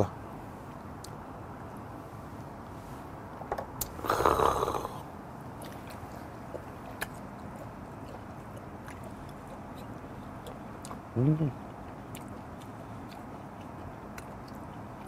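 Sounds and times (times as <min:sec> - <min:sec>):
man chewing food: 0:03.8 - 0:15.0.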